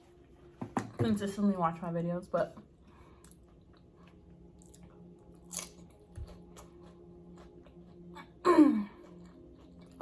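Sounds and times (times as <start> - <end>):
low steady hum: 0.0 - 10.0
chewing crunchy chips: 3.2 - 10.0.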